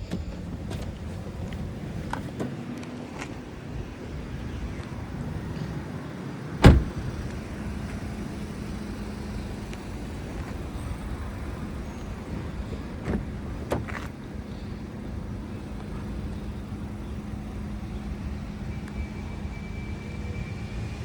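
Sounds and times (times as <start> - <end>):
car door shutting: 6.6 - 7.8, 13.0 - 14.1.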